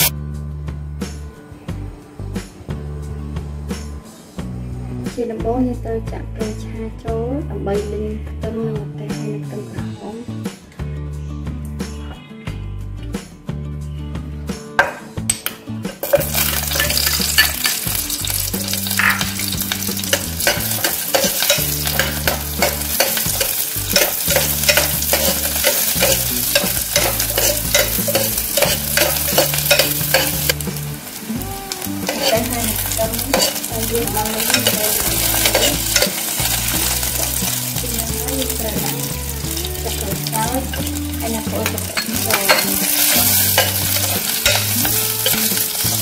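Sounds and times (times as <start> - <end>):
food sizzling in hot oil: 15.9 - 46.0
utensil scraping a pot: 16.0 - 30.6, 32.0 - 37.5, 41.9 - 46.0.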